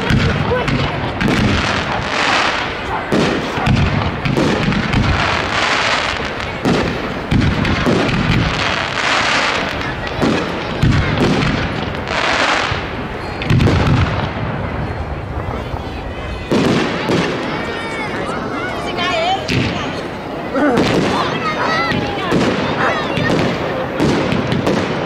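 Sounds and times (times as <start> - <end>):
firework booms and launches: 0.0 - 17.6, 20.8 - 25.0
firework crackling: 0.0 - 25.0.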